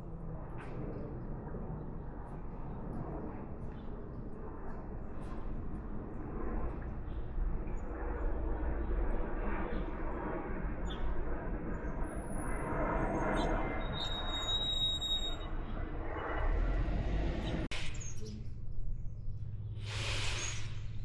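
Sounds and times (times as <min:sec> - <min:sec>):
high bird chirps: 0:13.2 - 0:15.5
outdoor rumble and hiss: 0:15.4 - 0:21.0.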